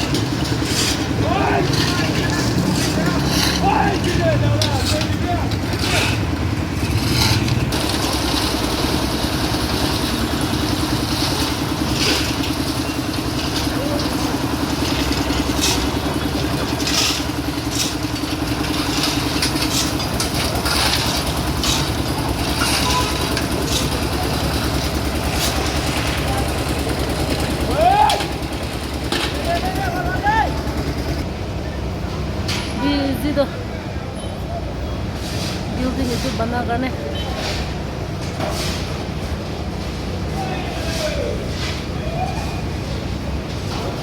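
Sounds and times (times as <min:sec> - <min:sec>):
knocks and clattering: 0:00.0 - 0:31.2
construction machinery engine: 0:00.0 - 0:44.0.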